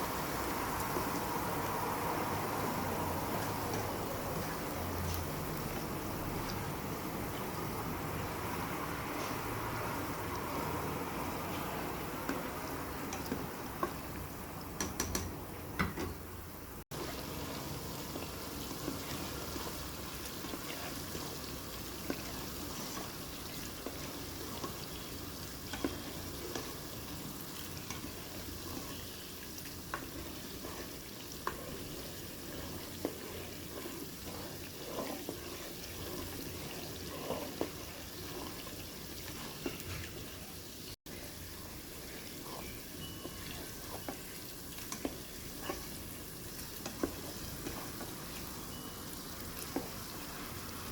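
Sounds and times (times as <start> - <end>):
food sizzling in hot oil: 0.0 - 14.3, 16.9 - 50.9
utensil clicking while stirring: 14.8 - 15.3, 22.0 - 39.9, 42.5 - 48.4.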